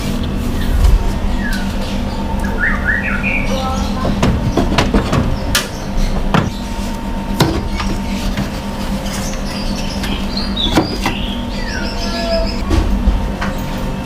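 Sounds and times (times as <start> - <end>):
steady motor hum: 0.0 - 14.0
sharp knocks and clatters: 4.0 - 6.6.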